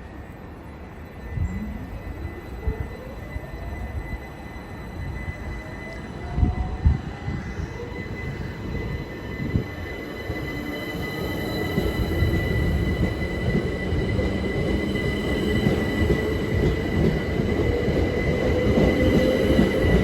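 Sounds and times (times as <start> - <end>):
train rumbling slowly: 0.0 - 20.0.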